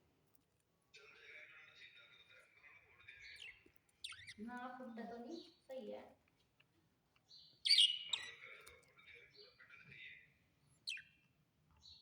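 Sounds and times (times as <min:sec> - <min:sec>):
small birds chirping: 0:01.8 - 0:12.0.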